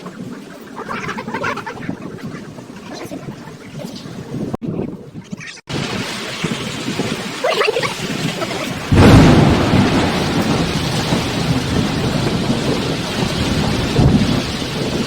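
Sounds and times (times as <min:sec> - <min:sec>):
heavy rain pouring: 0:05.7 - 0:15.0
thunderclap rumbling: 0:07.9 - 0:15.0.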